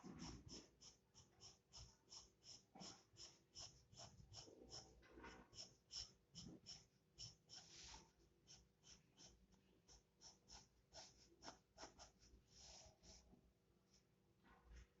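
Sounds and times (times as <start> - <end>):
pencil scratching on paper: 0.0 - 13.3.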